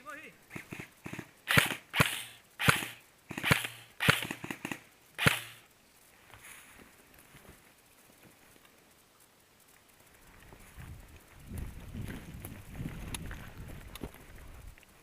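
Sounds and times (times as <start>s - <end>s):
airsoft gun shots: 0.5s - 5.7s.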